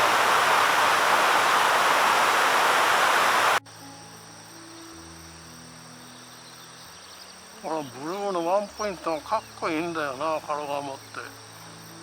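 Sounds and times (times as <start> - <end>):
rushing river water: 0.0 - 3.6
soft background music: 3.6 - 12.0.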